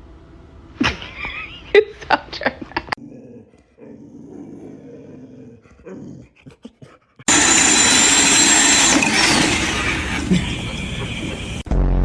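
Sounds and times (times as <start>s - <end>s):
dog growling: 3.0s - 11.6s.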